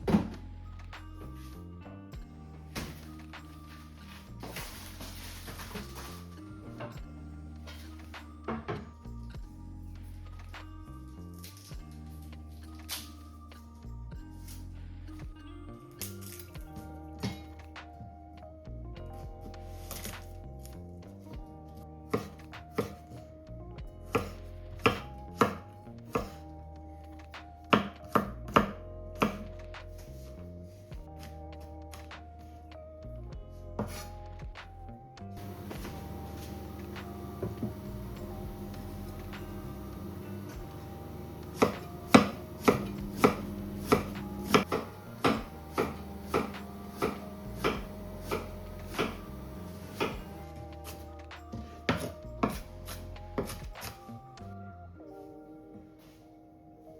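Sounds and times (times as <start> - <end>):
soft background music: 0.0 - 56.9
knife chopping on cutting board: 22.2 - 23.0, 24.9 - 25.6, 27.8 - 29.5, 35.4 - 50.4.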